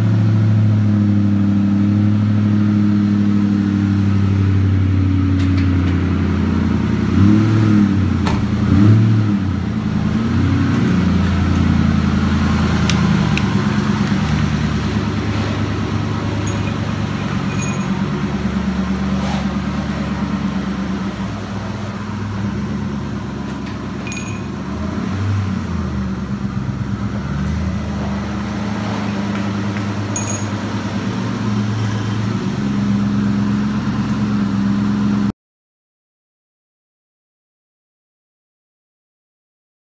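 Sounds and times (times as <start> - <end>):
car engine idling: 9.4 - 35.2.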